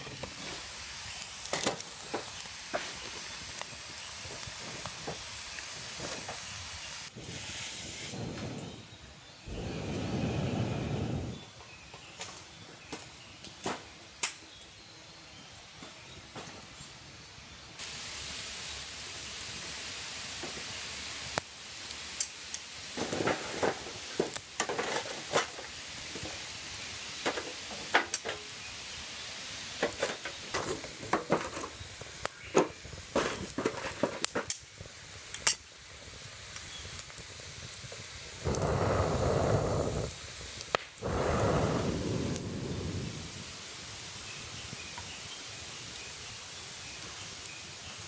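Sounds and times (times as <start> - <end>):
campfire crackling and snapping: 0.0 - 8.8, 9.5 - 11.4, 17.8 - 48.0
steady hiss: 0.0 - 12.1, 16.7 - 48.0
rush of noise: 41.0 - 43.6.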